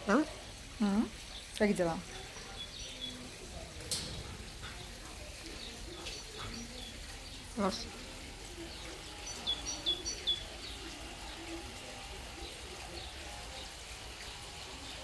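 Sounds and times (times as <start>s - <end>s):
small bird chirping: 2.2s - 3.2s, 9.2s - 10.8s.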